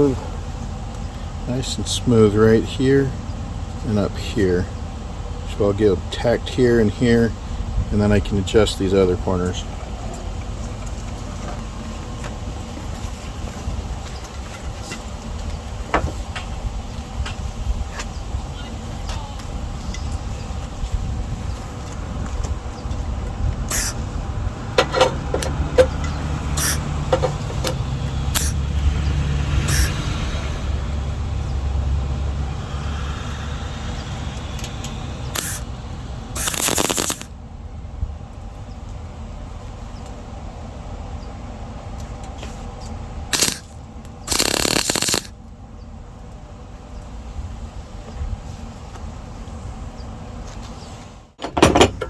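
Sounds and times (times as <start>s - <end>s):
electric tack welding bursts: 23.7s - 24.0s, 26.5s - 26.8s, 28.3s - 28.6s, 29.7s - 30.0s, 35.3s - 35.7s, 36.4s - 37.3s, 43.3s - 43.7s, 44.3s - 45.3s.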